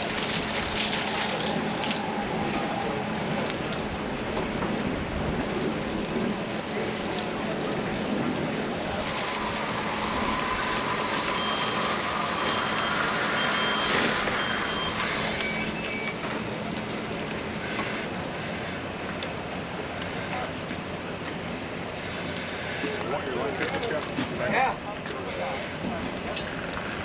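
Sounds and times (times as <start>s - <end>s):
steady rushing noise: 0.0s - 14.4s
reversing alarm beeps: 9.1s - 16.6s.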